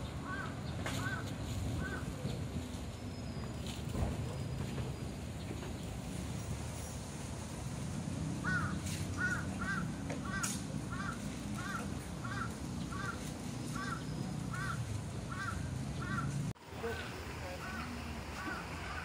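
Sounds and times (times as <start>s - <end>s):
bird calling: 0.0s - 3.6s, 8.4s - 19.0s.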